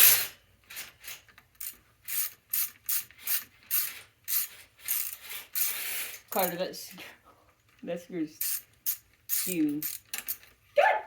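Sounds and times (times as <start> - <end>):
ratchet clicking: 1.6 - 6.6, 8.4 - 10.5.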